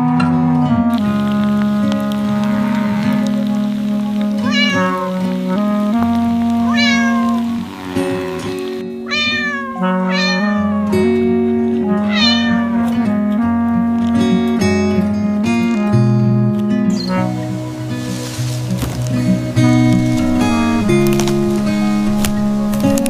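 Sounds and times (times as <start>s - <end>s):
background music: 0.0s - 23.0s
cat meowing: 4.4s - 5.5s, 6.6s - 11.3s, 11.9s - 13.0s.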